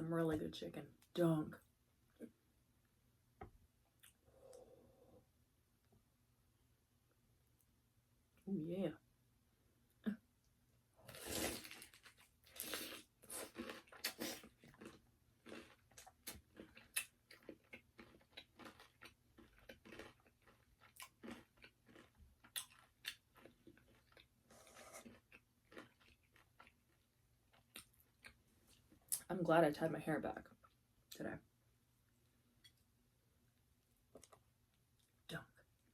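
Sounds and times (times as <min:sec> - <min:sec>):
crunchy chewing of fried chicken: 0:11.1 - 0:28.9.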